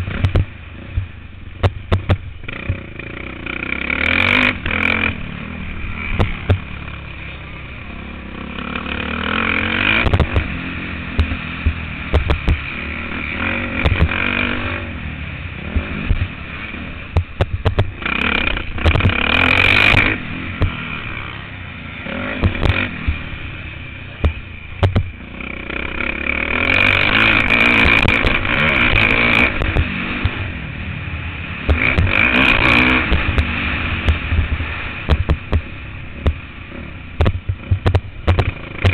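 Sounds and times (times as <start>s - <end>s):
motocross bike engine revving: 0.0s - 38.9s
bike knocks and clatter: 0.1s - 2.8s, 11.2s - 12.7s, 17.1s - 18.0s, 22.4s - 23.2s, 24.2s - 25.1s, 35.1s - 36.4s, 37.2s - 38.9s.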